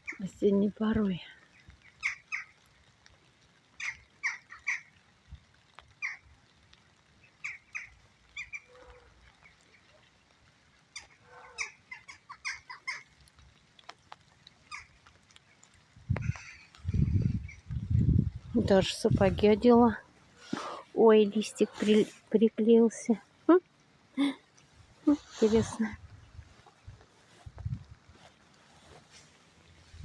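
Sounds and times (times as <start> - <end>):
jackdaws calling: 1.5 - 2.7, 3.7 - 5.0, 5.9 - 6.3, 7.2 - 10.0, 10.9 - 13.4, 14.5 - 15.6, 16.2 - 17.8.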